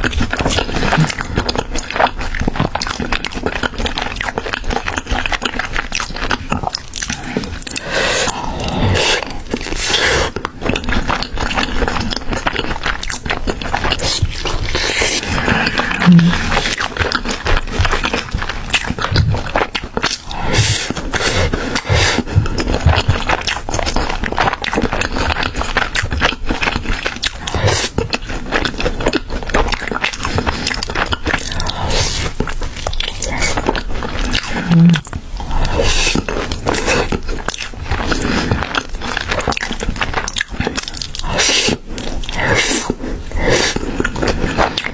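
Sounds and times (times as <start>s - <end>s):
crunchy bites and chewing: 0.0s - 44.9s
low grunt: 15.4s - 16.6s, 34.6s - 35.1s
short low hum: 16.0s - 16.4s.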